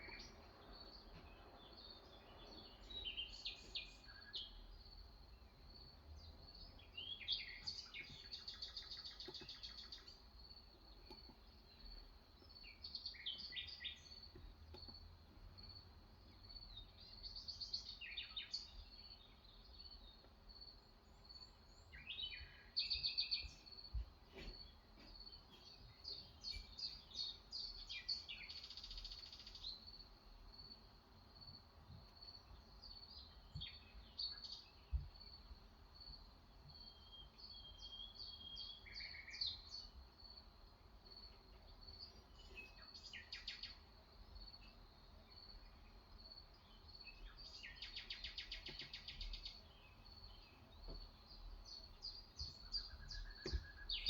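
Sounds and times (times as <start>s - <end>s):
birds chirping and singing: 47.2s - 54.0s.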